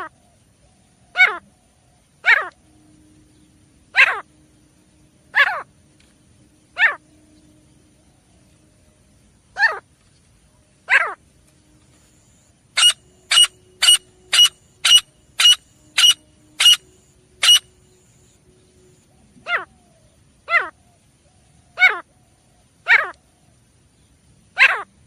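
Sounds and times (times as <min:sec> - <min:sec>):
francolin calling: 0:03.4 - 0:04.3, 0:12.2 - 0:23.3.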